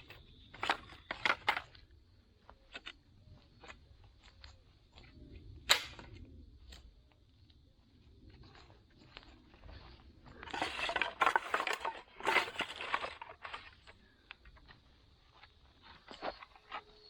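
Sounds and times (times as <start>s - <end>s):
hard objects clattering: 10.3s - 14.6s.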